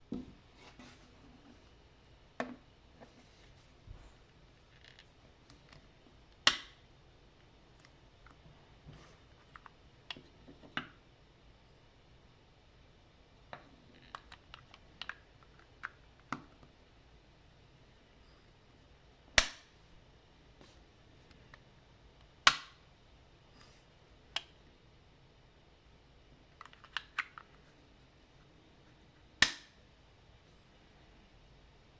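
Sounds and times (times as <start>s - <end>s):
sharp plastic snap: 6.4s - 6.8s, 19.4s - 19.8s, 22.5s - 22.8s, 29.4s - 29.8s
plastic clicks and snaps: 26.6s - 27.6s.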